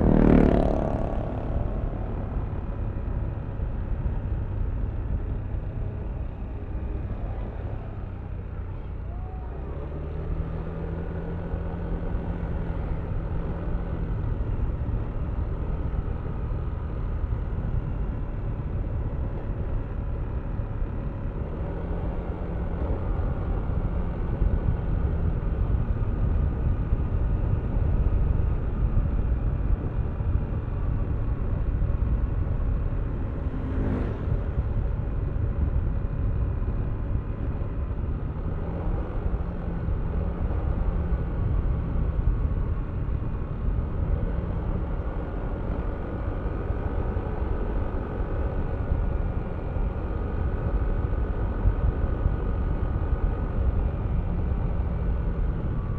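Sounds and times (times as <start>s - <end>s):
scooter engine running: 0.0s - 3.0s
wind rumble on microphone: 10.4s - 55.9s.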